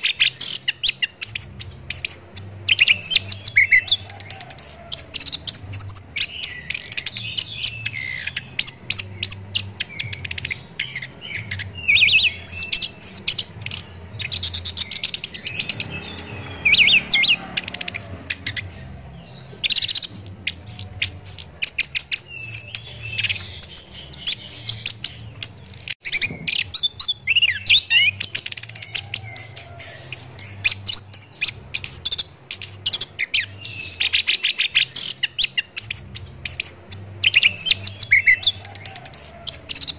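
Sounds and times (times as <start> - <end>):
thrush singing chirps and whistles: 0.0 - 39.9.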